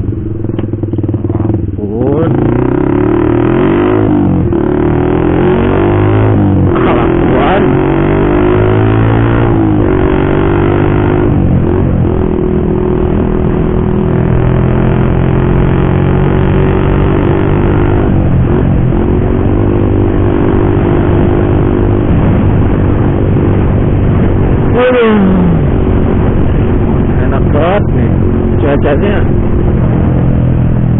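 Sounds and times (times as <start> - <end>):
loud motorcycle exhaust: 0.0 - 30.9.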